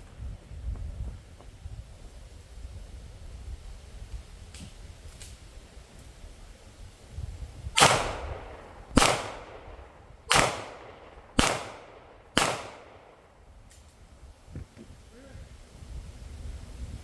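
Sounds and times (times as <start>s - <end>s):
gunshots with short echo: 7.8s - 13.4s.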